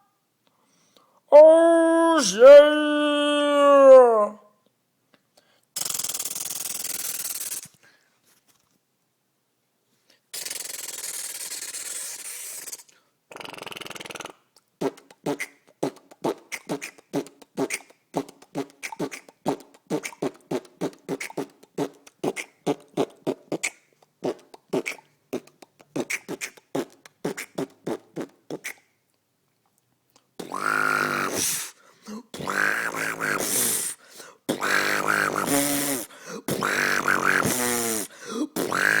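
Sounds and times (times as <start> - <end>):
person beatboxing: 5.8 - 7.6, 10.4 - 28.8, 30.4 - 39.0.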